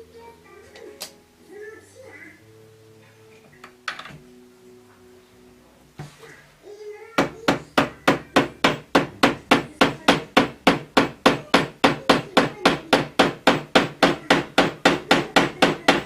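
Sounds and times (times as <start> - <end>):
hammer striking wood: 7.2 - 16.0.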